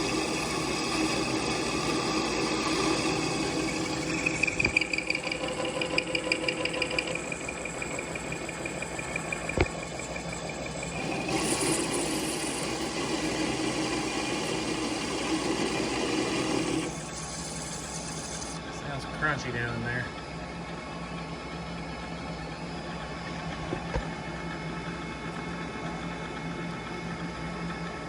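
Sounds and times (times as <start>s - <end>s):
lathe cutting metal: 0.0s - 18.7s
high pulsing squeal: 0.0s - 23.2s.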